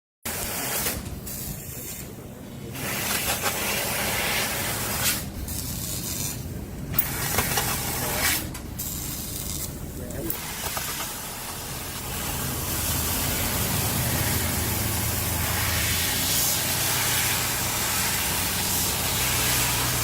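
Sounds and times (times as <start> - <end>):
cutting machine hissing: 10.3 - 20.0.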